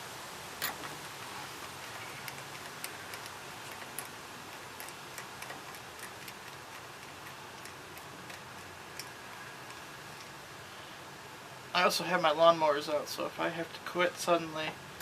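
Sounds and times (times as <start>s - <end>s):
steady hiss: 0.0s - 15.0s
hand tools and metal parts clicking: 0.6s - 10.4s.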